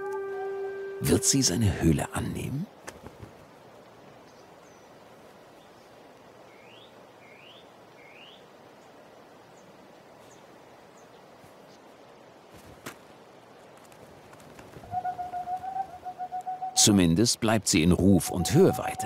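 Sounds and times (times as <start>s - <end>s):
forest night ambience: 0.0s - 19.0s
bird rising calls: 14.5s - 16.8s, 18.0s - 19.0s.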